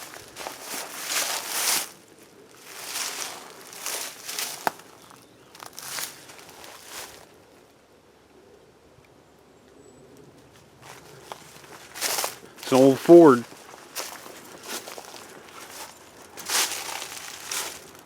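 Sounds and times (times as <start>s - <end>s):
footsteps: 0.0s - 2.0s, 2.6s - 5.0s, 10.8s - 18.0s.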